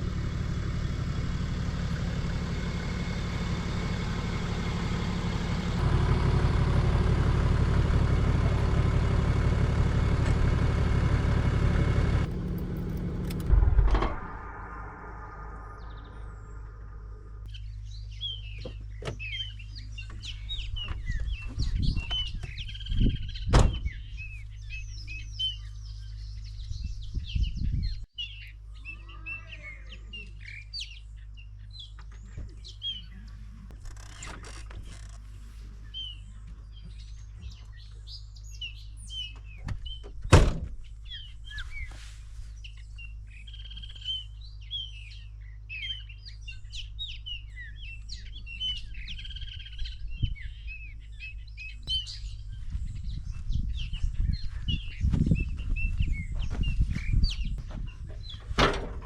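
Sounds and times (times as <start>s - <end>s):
steady low rumble: 0.0s - 18.6s, 40.8s - 59.0s
loud thump: 12.3s - 16.2s, 23.5s - 23.9s
birds chirping and calling: 15.6s - 40.2s, 40.8s - 59.0s.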